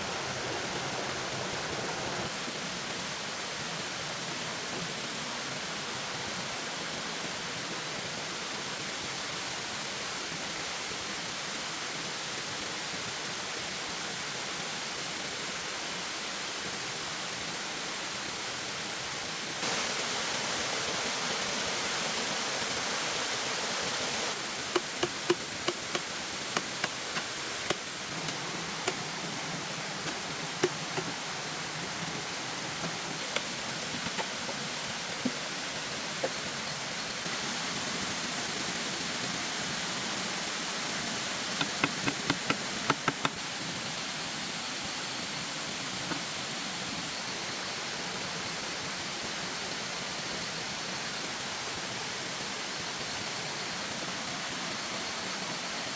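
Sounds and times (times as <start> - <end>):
rain hissing: 0.0 - 2.4, 19.6 - 43.8
sharp ticks and taps: 24.8 - 29.0, 41.6 - 43.4.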